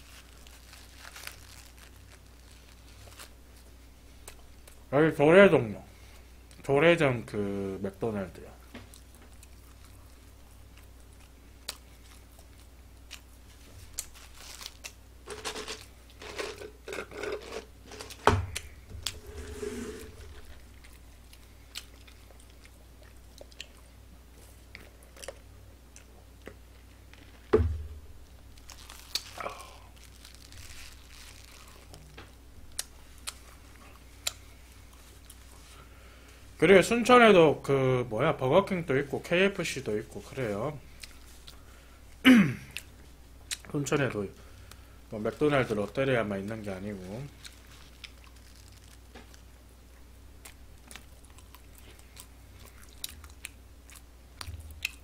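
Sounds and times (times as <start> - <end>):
person chewing burger: 20.3 - 27.3, 28.6 - 32.0, 32.7 - 35.6, 47.3 - 55.0
sharp thumps: 27.5 - 28.3.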